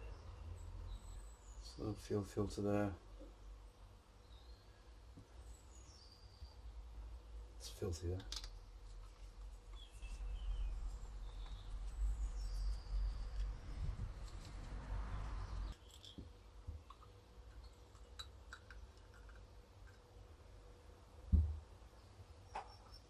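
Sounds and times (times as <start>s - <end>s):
small metal parts clicking: 8.2s - 8.6s, 15.7s - 16.2s.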